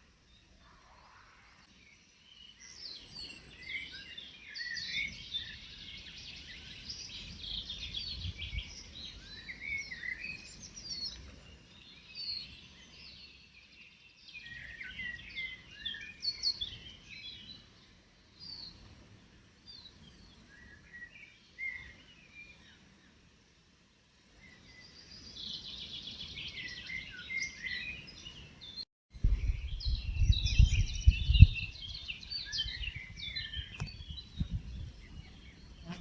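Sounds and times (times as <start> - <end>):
songbirds singing: 0.2 - 19.0, 19.6 - 23.2, 24.2 - 36.0.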